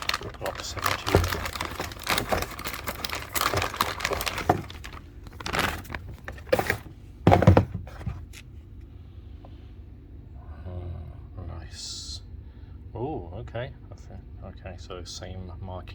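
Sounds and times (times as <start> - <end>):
packaging rustling: 0.0 - 8.4.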